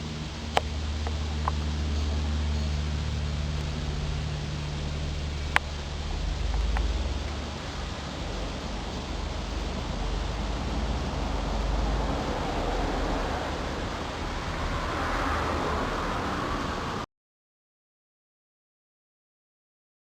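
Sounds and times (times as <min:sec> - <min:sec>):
rushing noise with low rumble: 0:00.0 - 0:17.1.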